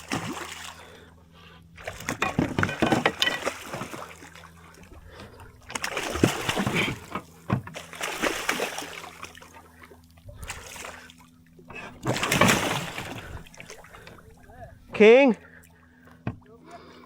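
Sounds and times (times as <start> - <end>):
fish thrashing water splashing: 0.0 - 1.1, 1.8 - 9.8, 10.4 - 11.2, 11.8 - 14.3.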